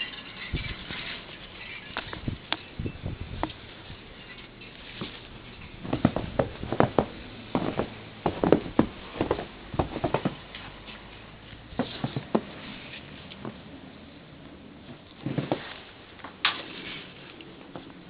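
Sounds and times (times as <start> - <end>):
footsteps crunching through snow: 4.8 - 13.5.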